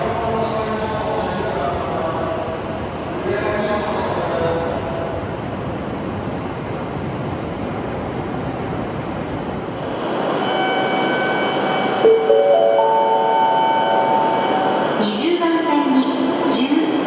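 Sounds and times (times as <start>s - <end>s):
train rushing past: 0.0s - 17.0s
steady whining tones: 9.8s - 15.4s.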